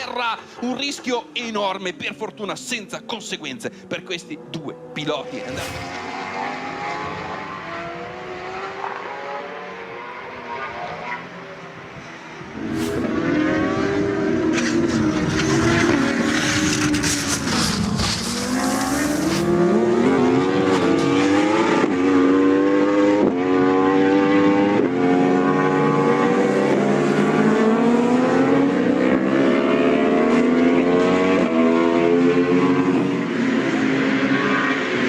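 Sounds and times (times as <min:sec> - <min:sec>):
racing motorcycle engine: 0:04.3 - 0:11.3, 0:12.3 - 0:35.0
rush of noise: 0:12.5 - 0:14.1.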